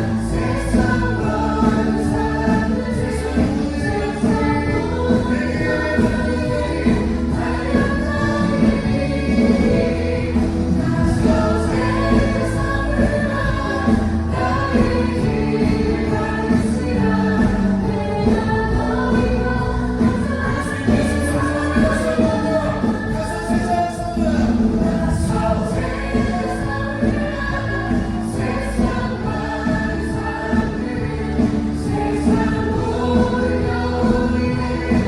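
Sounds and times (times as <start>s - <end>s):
group singing gospel: 0.0s - 35.0s
instrumental backing with bass: 0.0s - 35.0s.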